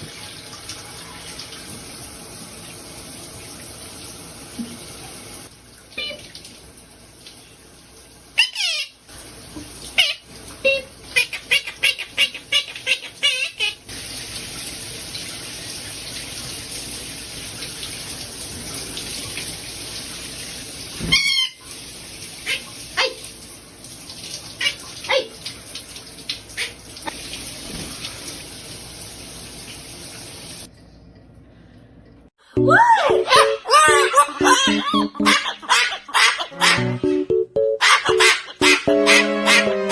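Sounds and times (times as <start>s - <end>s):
water running from a tap: 0.0s - 30.8s.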